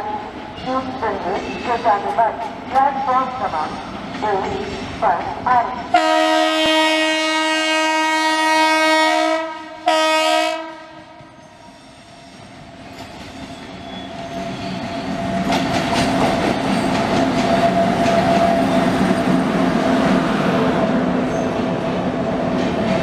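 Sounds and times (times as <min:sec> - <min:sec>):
steady train whine: 0:00.0 - 0:23.0
train wheels clattering on rails: 0:00.3 - 0:06.8, 0:11.2 - 0:20.6, 0:21.3 - 0:23.0
locomotive horn blasts: 0:06.0 - 0:11.1.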